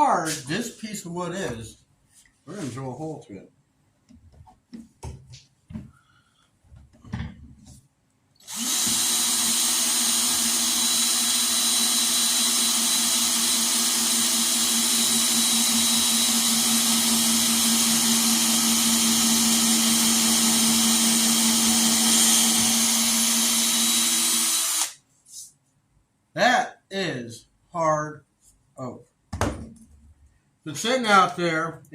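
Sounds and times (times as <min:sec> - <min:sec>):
power drill boring into wood: 0:08.4 - 0:25.0.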